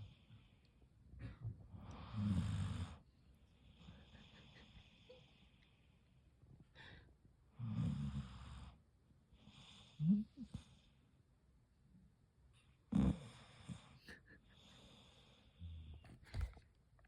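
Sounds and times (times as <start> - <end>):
dog snoring: 1.8 - 3.0, 7.6 - 8.8, 12.9 - 16.1.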